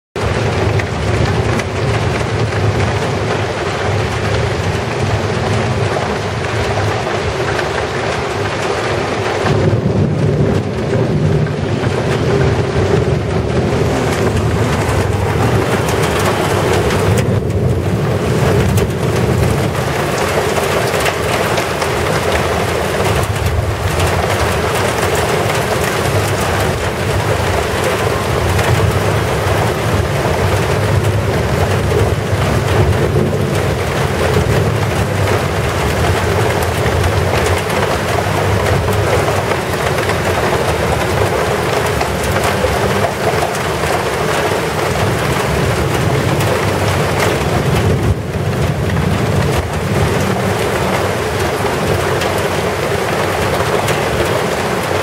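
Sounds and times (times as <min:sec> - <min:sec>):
heavy rain pouring: 0:00.1 - 0:55.0
low rumble: 0:08.5 - 0:21.0.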